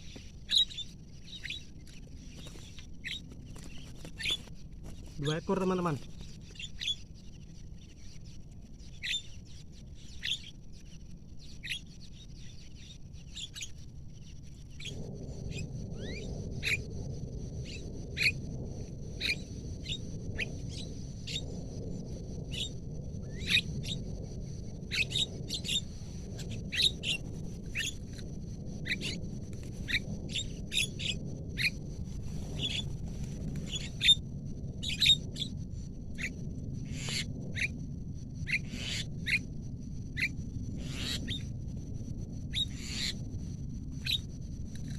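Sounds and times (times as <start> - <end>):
steady high-pitched whine: 0.0 - 44.9
steady low noise: 11.0 - 44.9
birds giving sharp calls: 32.6 - 34.2, 38.5 - 39.4, 40.2 - 41.4, 42.5 - 43.2.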